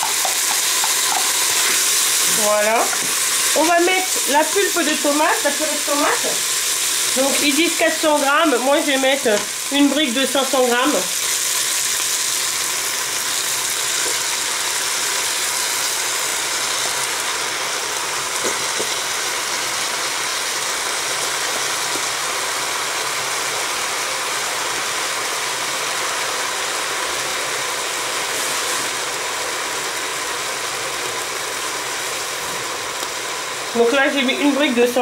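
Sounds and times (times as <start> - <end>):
food sizzling in a pot: 0.0 - 35.0.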